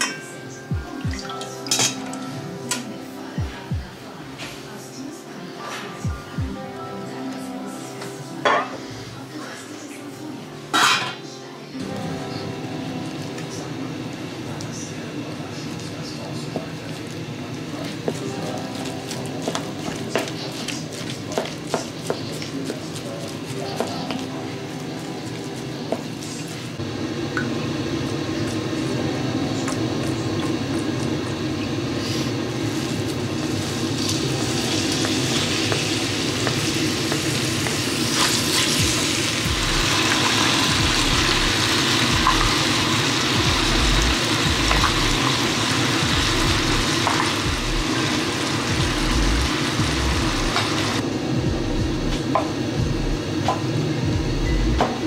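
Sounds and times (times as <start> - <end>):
chicken sizzling in pan: 15.7 - 51.0.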